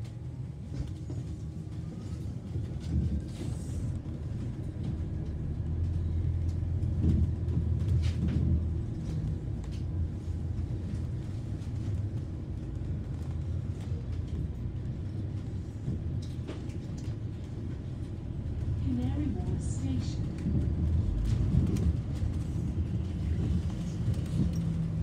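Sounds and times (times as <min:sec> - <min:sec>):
bus rumbling from inside: 0:00.0 - 0:25.0.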